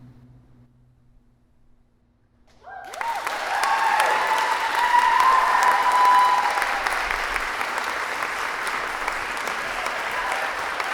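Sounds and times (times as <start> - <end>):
cheering and whooping voices: 2.6 - 8.2, 9.2 - 10.9
audience applause: 2.6 - 10.9.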